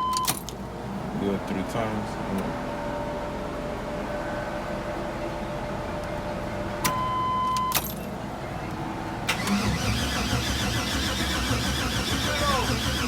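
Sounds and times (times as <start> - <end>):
beep: 6.9 - 7.8
engine starter cranking: 9.3 - 13.0.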